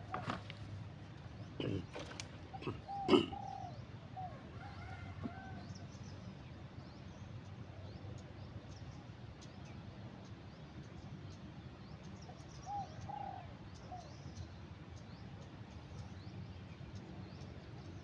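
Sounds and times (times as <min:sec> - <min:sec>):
birds cooing: 0:00.0 - 0:06.0, 0:12.7 - 0:14.1.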